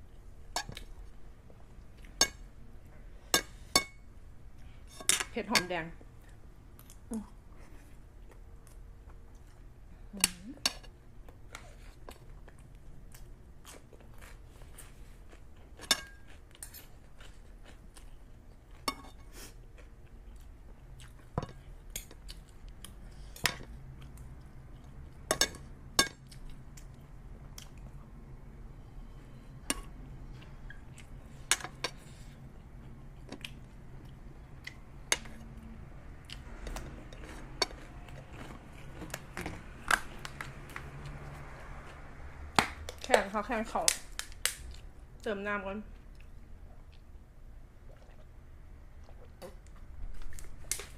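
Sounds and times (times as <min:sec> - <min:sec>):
chewing: 0:47.8 - 0:48.3.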